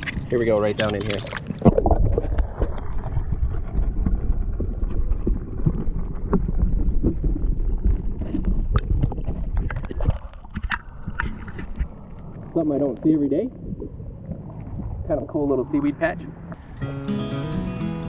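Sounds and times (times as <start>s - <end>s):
small underwater clicks and knocks: 0.0s - 12.4s
underwater rumble: 0.0s - 16.8s.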